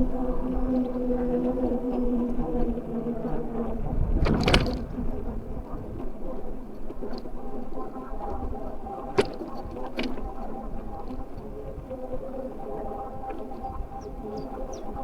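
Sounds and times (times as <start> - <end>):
faint motor whine: 0.0 - 15.0
tyre and road noise: 4.0 - 5.5
rattling knocks from bumps: 4.2 - 5.1.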